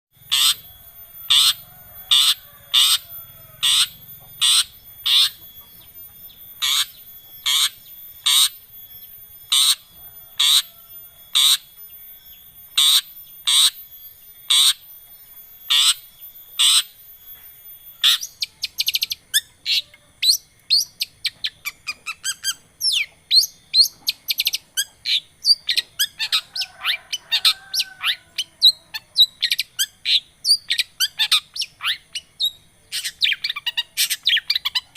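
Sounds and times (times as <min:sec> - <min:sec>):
bird chattering song: 0:00.2 - 0:34.9
shrike harsh calls: 0:00.2 - 0:34.9.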